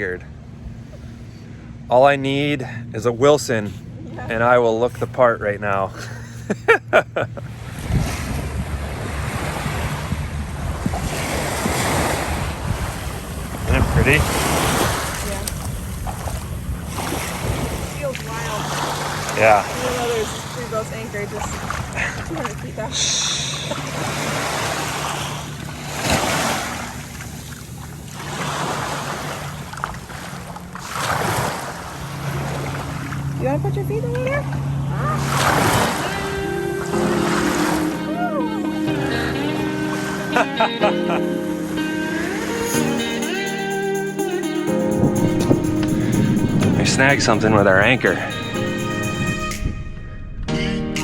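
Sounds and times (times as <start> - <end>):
waves and surf washing: 0.0 - 50.2
wind buffeting microphone: 7.4 - 28.0, 44.9 - 50.5
person speaking: 46.6 - 48.6.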